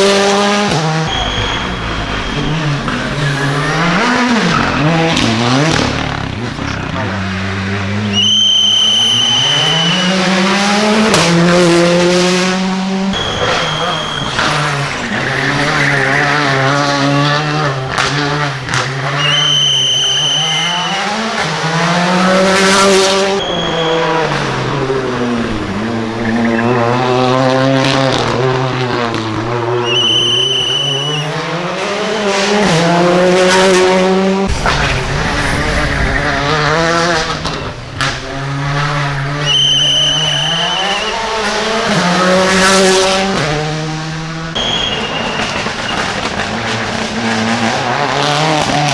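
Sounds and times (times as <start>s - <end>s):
tyre squeals: 0.0s - 5.3s, 8.0s - 10.3s, 13.1s - 17.2s, 19.0s - 27.0s, 29.7s - 32.9s, 38.8s - 43.2s, 44.6s - 47.0s
rally car engines revving: 0.0s - 48.9s.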